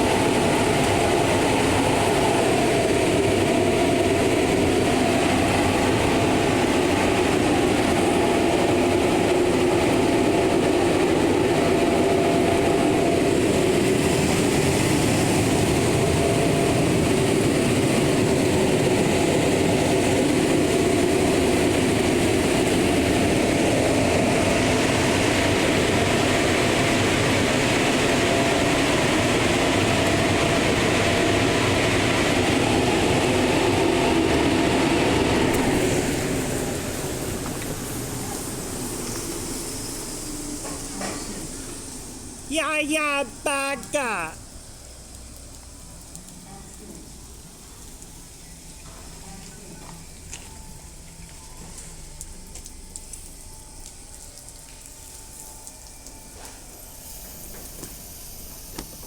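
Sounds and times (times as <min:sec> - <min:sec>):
car wash equipment rushing: 0:00.0 - 0:42.5.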